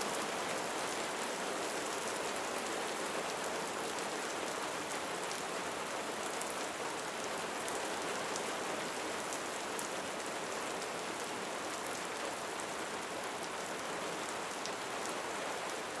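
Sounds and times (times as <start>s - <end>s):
rain on a roof: 0.0s - 16.0s.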